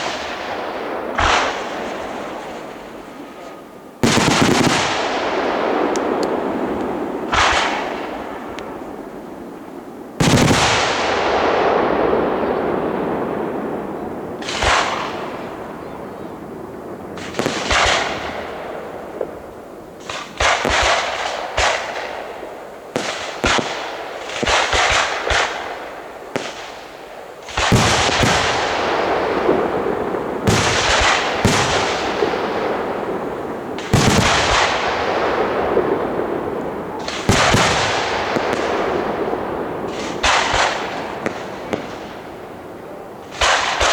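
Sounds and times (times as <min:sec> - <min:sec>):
fireworks bursting with echo: 0:00.0 - 0:43.9.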